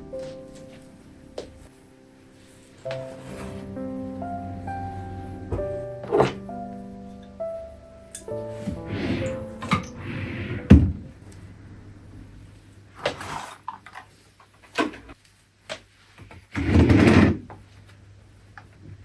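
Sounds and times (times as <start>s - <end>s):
scraping and rustling: 2.4s - 3.8s.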